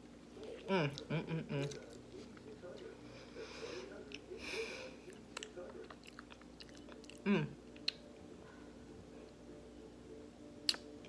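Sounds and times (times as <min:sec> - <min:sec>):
chewing food close-up: 0:00.0 - 0:03.0, 0:05.0 - 0:08.2
person humming: 0:07.2 - 0:07.6.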